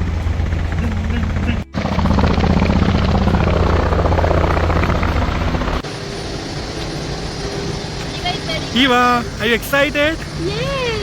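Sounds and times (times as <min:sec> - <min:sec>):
helicopter rotor beating: 0:00.0 - 0:11.0.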